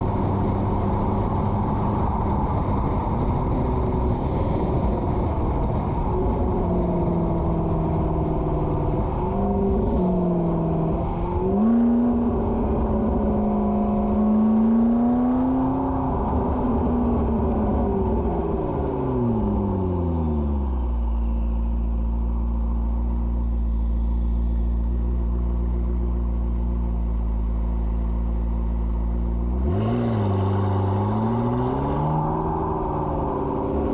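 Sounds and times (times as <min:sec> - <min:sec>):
car engine revving: 0:00.0 - 0:20.8, 0:28.0 - 0:33.9.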